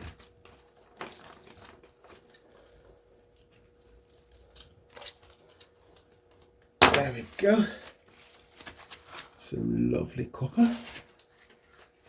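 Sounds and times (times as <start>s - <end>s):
plastic insulation crinkling and tearing: 7.0s - 9.4s.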